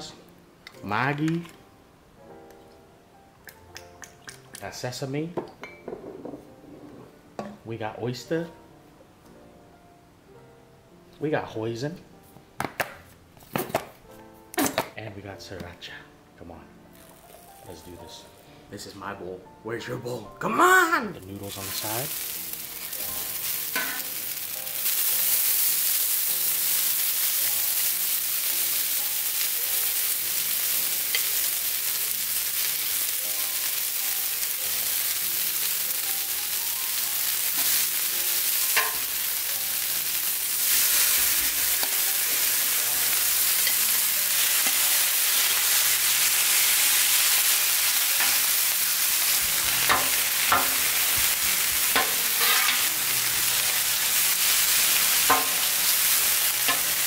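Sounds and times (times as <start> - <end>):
food sizzling on a griddle: 21.2 - 57.0.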